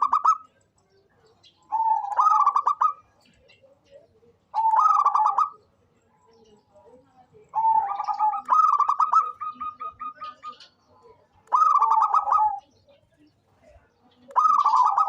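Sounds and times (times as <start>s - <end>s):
dove cooing: 0.0s - 0.6s, 1.6s - 5.7s, 7.5s - 12.7s, 14.3s - 15.0s.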